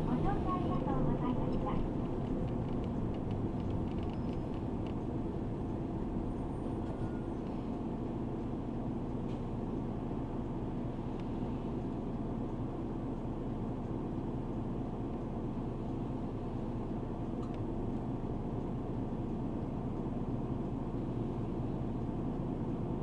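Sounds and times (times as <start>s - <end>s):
bus engine rumble inside cabin: 0.0s - 23.0s
faint light ticks: 1.5s - 5.8s, 11.1s - 16.0s, 17.2s - 20.7s.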